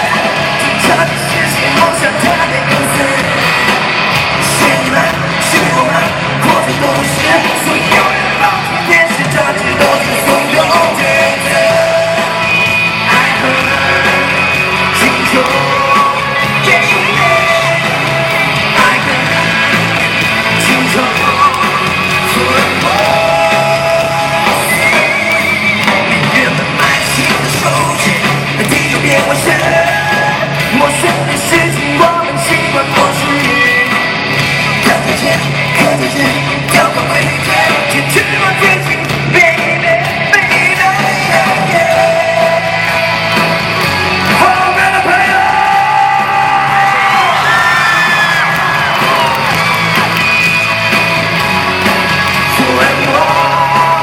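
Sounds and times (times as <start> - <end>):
pop-rock band playing live: 0.0 - 54.0
man singing long notes: 4.4 - 34.0, 52.4 - 54.0.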